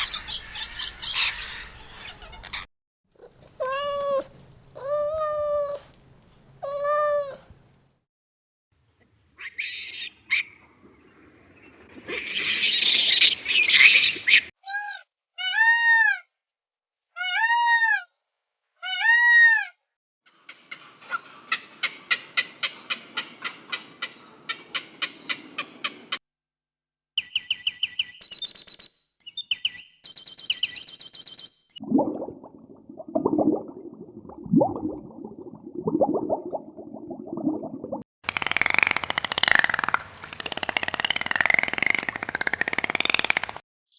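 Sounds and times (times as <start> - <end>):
high chirping: 27.2 - 31.8
fast animal clicks: 38.2 - 43.6.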